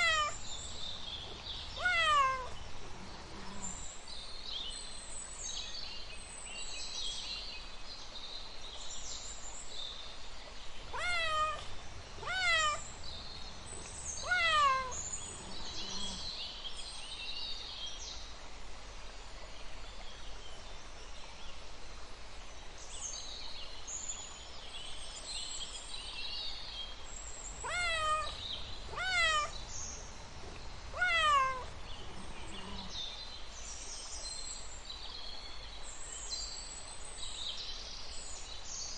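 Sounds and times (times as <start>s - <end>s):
cats meowing: 0.0s - 3.8s, 10.9s - 16.2s, 27.6s - 33.0s.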